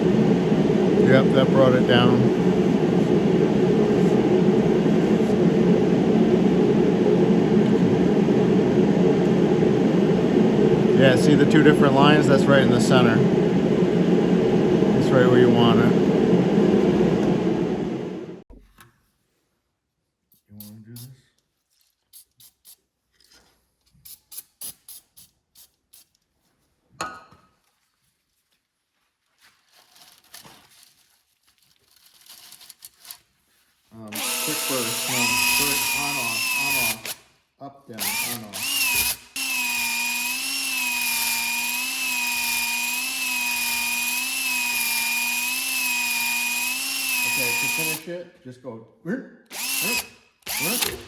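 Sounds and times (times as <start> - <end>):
electric drill whining: 34.1 - 37.2, 38.0 - 48.1, 49.5 - 51.0.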